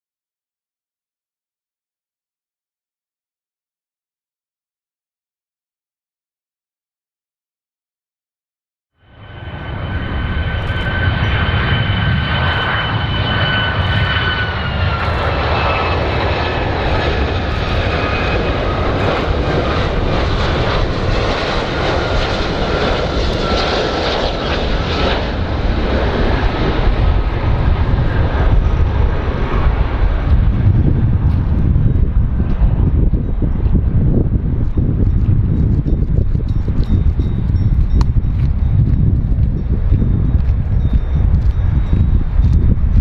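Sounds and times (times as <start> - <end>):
airplane engines whining: 9.0 - 43.0.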